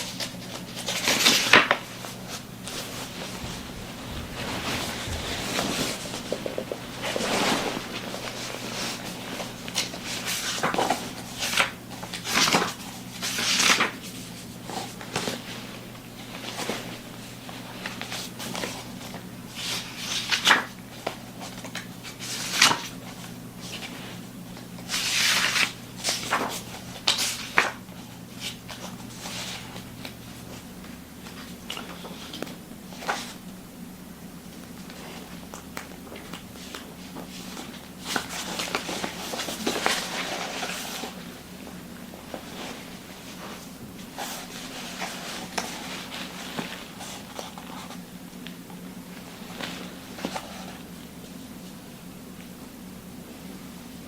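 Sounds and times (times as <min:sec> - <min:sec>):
low steady hum: 0:00.0 - 0:54.0
rustling swishes: 0:02.2 - 0:09.0.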